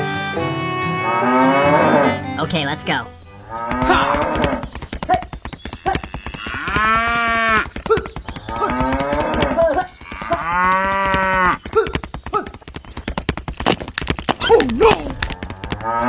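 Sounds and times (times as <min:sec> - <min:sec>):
cattle mooing: 0:01.0 - 0:02.3.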